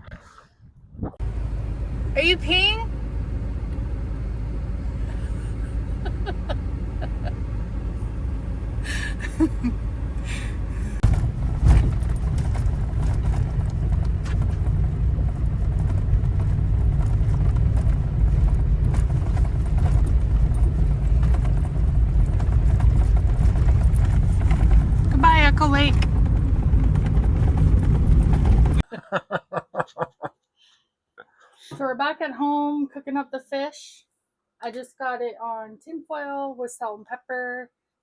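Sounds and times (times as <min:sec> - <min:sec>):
wind buffeting microphone: 0:00.6 - 0:28.8.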